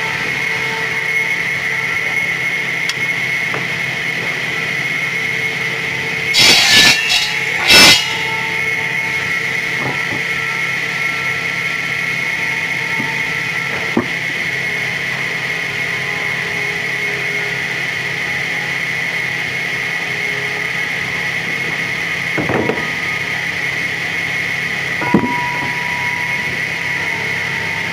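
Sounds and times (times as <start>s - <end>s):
sawmill machinery whining: 0.0s - 27.9s
loud harsh bursts: 6.3s - 9.2s.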